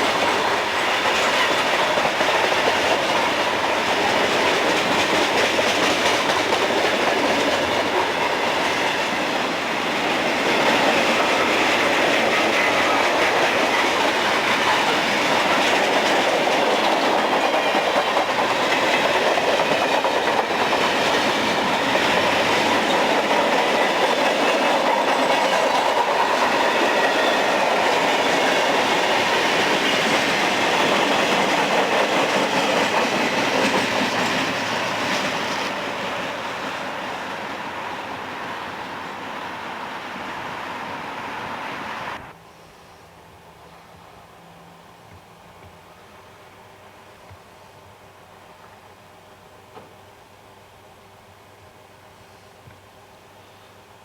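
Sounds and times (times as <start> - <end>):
train wheels clattering over rails: 0.0 - 37.5.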